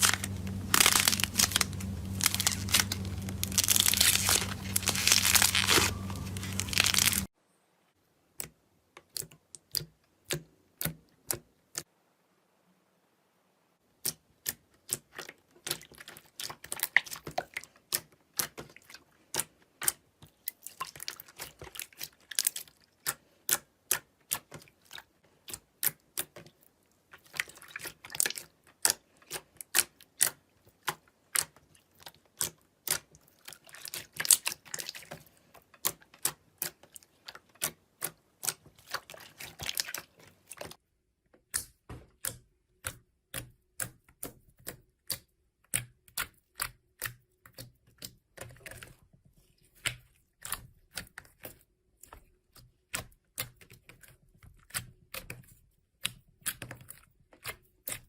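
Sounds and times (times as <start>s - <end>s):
slime crackling: 0.0s - 7.3s.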